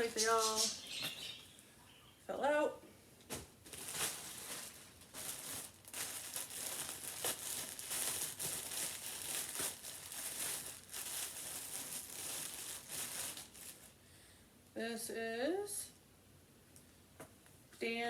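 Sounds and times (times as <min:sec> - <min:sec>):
plastic packaging crinkling: 0:03.6 - 0:14.0.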